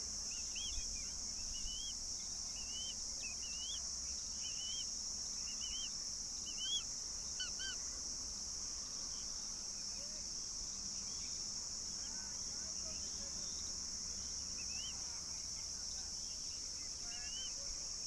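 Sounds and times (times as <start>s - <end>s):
insects droning: 0.0s - 18.0s
bird chirping: 0.3s - 7.8s, 12.8s - 15.1s, 16.2s - 17.7s.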